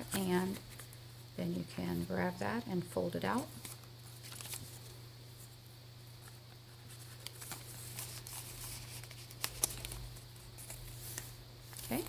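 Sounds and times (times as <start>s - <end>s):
steady low hum: 0.0s - 12.0s
paper rustling: 3.5s - 5.0s, 6.2s - 12.0s.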